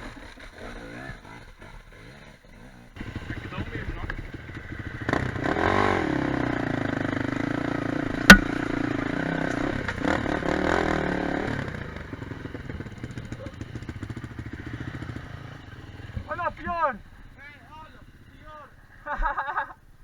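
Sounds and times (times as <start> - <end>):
quad bike engine revving: 0.0 - 18.4
sharp knock: 8.3 - 8.7.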